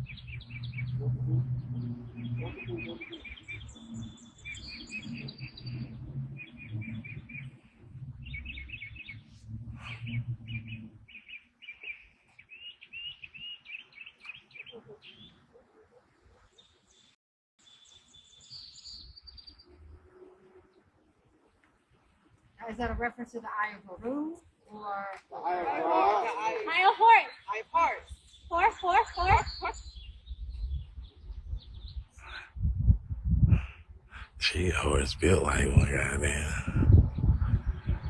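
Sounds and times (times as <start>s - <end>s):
small birds chirping: 0.0s - 22.8s, 27.0s - 32.7s.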